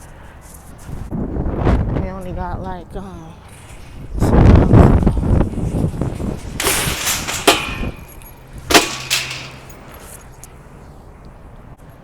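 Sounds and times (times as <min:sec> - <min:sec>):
wind buffeting microphone: 0:00.8 - 0:11.8
shopping cart rattling and clanging: 0:03.4 - 0:10.9
sharp metal bangs: 0:03.5 - 0:10.8.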